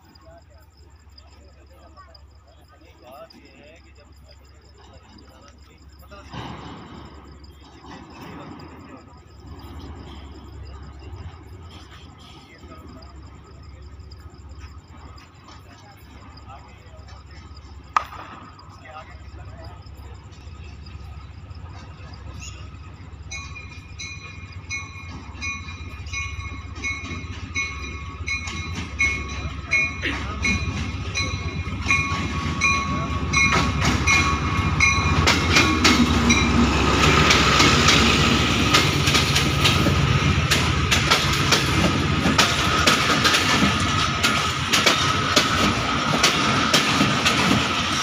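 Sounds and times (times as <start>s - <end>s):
diesel locomotive rumble: 0.0s - 48.0s
train wheels clicking over rail joints: 2.7s - 48.0s.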